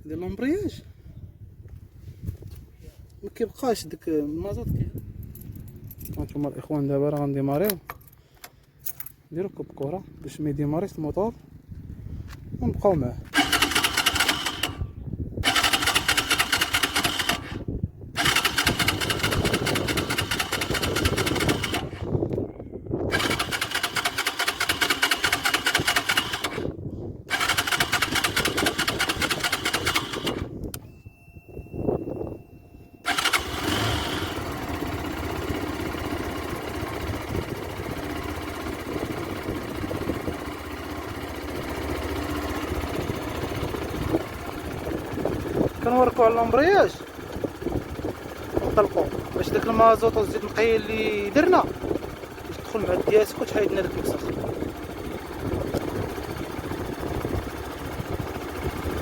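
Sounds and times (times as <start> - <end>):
quiet engine running: 0.1 - 59.0
motorcycle starter cranking: 13.2 - 22.4, 23.1 - 31.1, 33.0 - 59.0.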